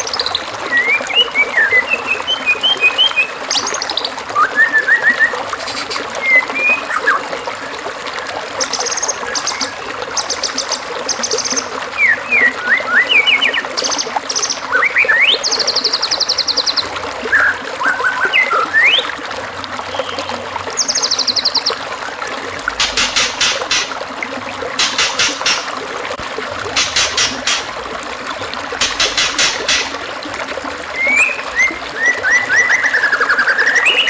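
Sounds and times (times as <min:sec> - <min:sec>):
trickle of running water: 0:00.0 - 0:34.0
songbird whistled notes: 0:31.0 - 0:34.0.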